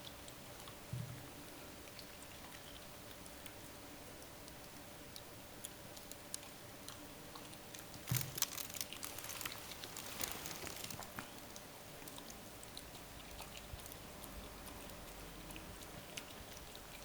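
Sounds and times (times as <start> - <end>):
dog chewing and crunching: 5.6 - 17.0
small clicks: 8.1 - 11.2.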